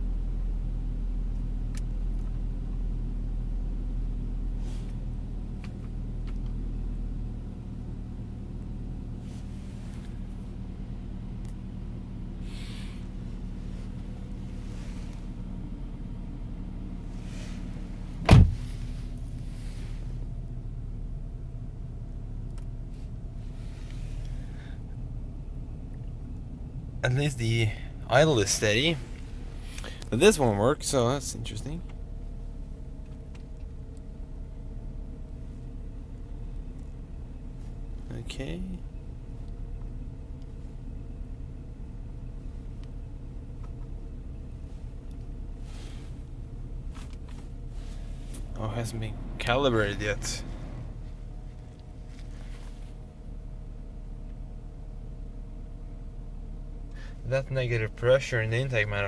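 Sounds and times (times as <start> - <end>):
car engine idling: 0.0 - 59.0
loud short thump: 18.2 - 18.9.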